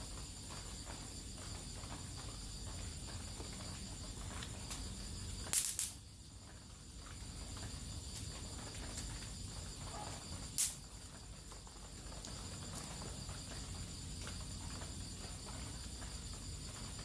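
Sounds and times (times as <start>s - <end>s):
night background: 0.0s - 17.0s
electric mosquito racket zap: 5.4s - 6.0s, 10.6s - 10.9s.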